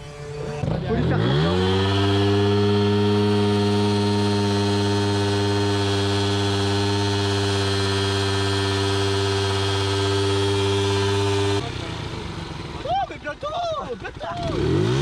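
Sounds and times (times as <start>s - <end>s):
two-stroke engine at high revs: 0.0s - 15.0s.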